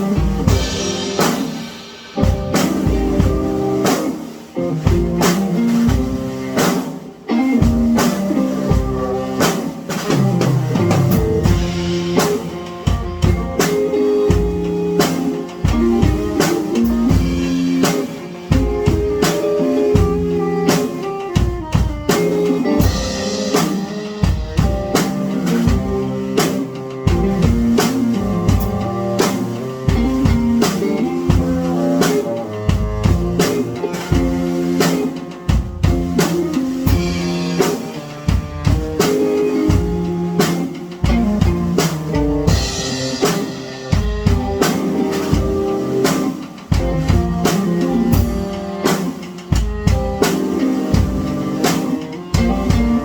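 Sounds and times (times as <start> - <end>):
drum kit beat: 0.0 - 53.0
held pitched notes: 0.0 - 53.0.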